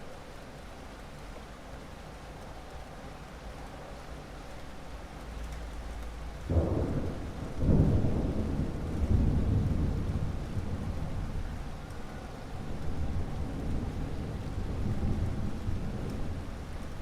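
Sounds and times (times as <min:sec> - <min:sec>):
steady rain: 0:00.0 - 0:17.0
thunder rumbling: 0:06.5 - 0:17.0.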